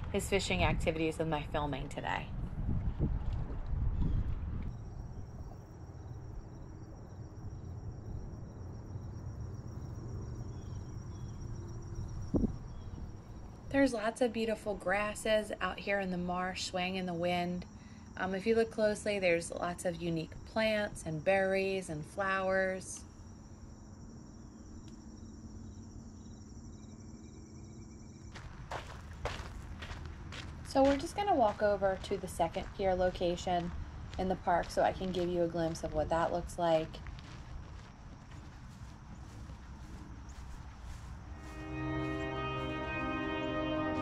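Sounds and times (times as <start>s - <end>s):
wind rumbling on microphone: 0.0s - 16.9s
insects trilling: 4.0s - 44.0s
footsteps: 28.3s - 35.8s, 36.9s - 44.0s.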